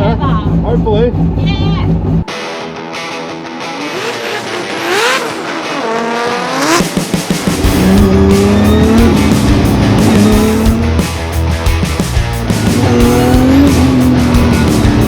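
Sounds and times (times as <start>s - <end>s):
car engine revving hard: 3.4s - 11.4s, 12.4s - 15.0s.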